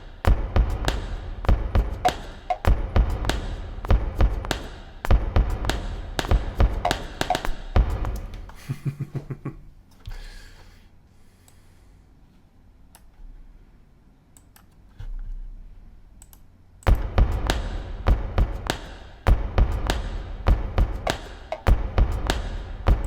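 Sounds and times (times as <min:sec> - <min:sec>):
rhythmic loop of object hits: 0:00.0 - 0:09.5, 0:16.9 - 0:23.0
low thumps: 0:00.3 - 0:09.5, 0:16.9 - 0:23.0.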